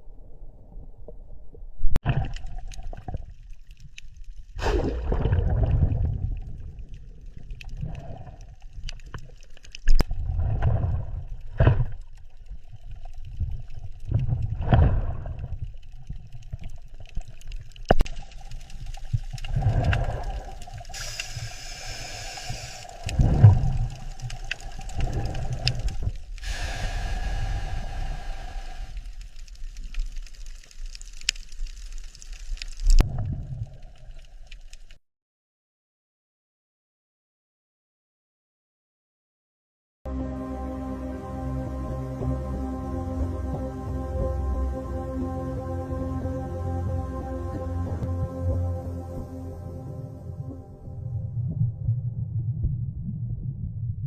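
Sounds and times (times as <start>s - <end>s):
water sloshing and splashing: 2.0s - 21.5s, 22.4s - 26.4s.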